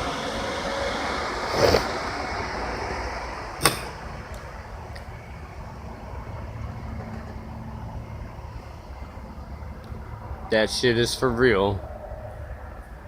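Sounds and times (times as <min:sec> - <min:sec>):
low mechanical hum: 0:00.0 - 0:13.0
sharp click: 0:03.6 - 0:04.0.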